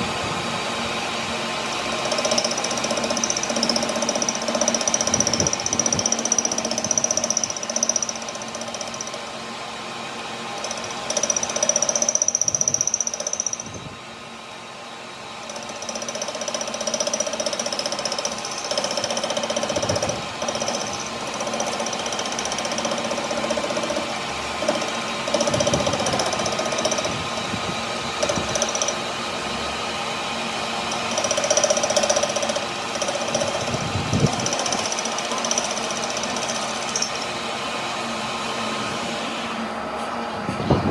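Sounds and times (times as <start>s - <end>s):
power tool humming and whining: 15.6s - 39.7s.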